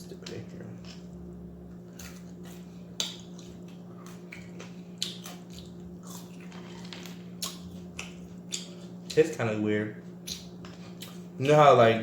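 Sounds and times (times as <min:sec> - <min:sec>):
food being bitten and chewed: 0:00.8 - 0:09.2, 0:10.2 - 0:11.3.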